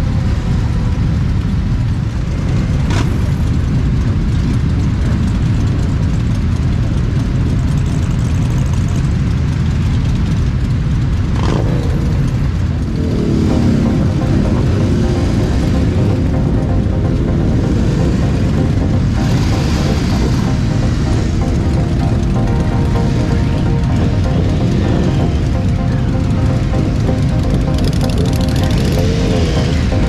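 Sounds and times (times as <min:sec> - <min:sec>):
motorcycle engines rumbling: 0:00.0 - 0:30.0.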